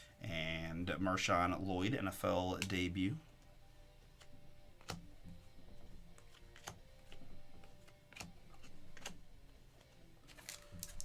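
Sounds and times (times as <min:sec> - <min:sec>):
trading cards clicking and tapping: 0:02.3 - 0:11.0.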